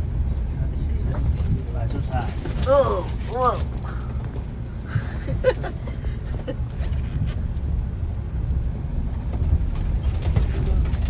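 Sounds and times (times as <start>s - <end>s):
car rumbling on dirt road: 0.0s - 11.0s
car knocks and rattles: 8.6s - 11.0s.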